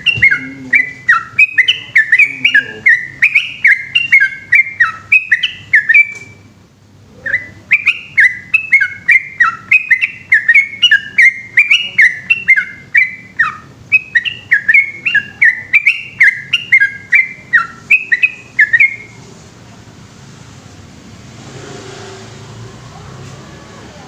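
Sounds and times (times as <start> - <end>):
bulbul singing whistled notes: 0.0 - 6.5, 7.2 - 19.2.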